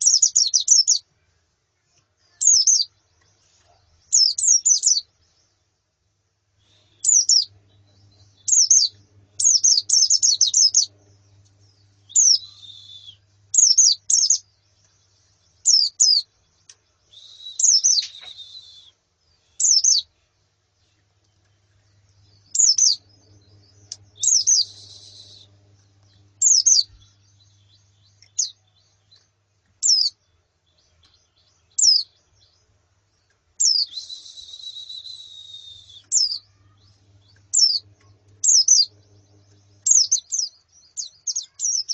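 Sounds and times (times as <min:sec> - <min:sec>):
birds chirping: 0:00.0 - 0:41.9
buzzy bird trills: 0:06.8 - 0:14.4, 0:22.4 - 0:28.6, 0:35.4 - 0:41.9.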